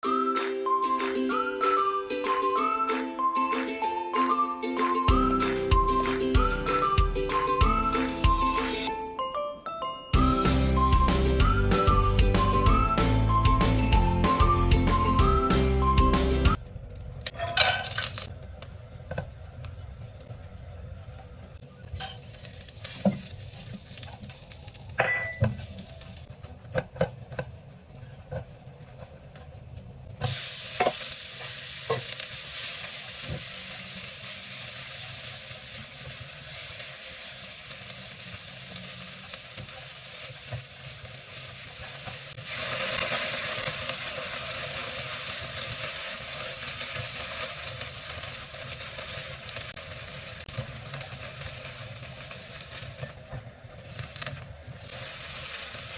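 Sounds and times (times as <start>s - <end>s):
food sizzling in hot oil: 17.4s - 18.4s, 21.9s - 27.1s, 30.2s - 55.9s.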